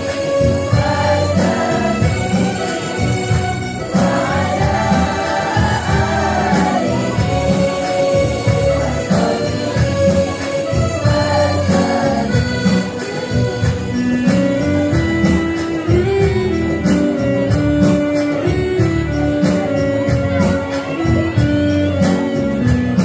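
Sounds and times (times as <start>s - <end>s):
instrumental accompaniment: 0.0s - 23.0s
steady percussive beat: 0.0s - 23.0s
women's choir singing: 0.7s - 3.2s, 3.8s - 8.0s, 8.6s - 10.0s, 11.0s - 12.8s.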